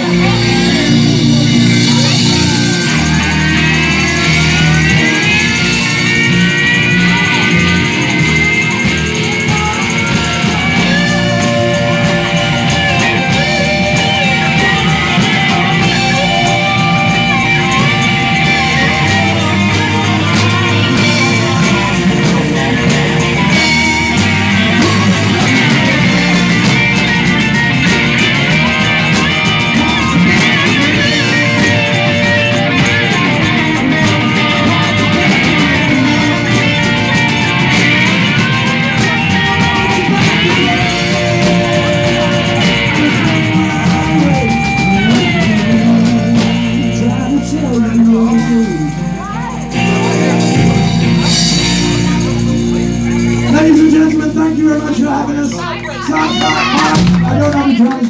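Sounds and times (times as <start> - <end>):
lead guitar bending notes: 0.0 - 58.0
rock band playing: 0.0 - 58.0.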